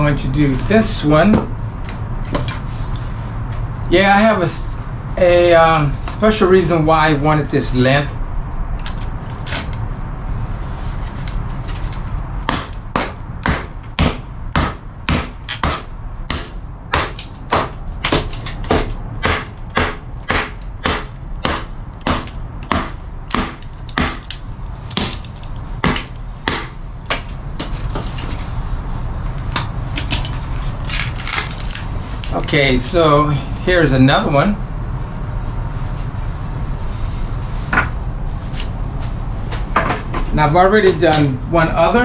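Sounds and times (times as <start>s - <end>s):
baton knocking blade through wood: 12.5s - 28.3s.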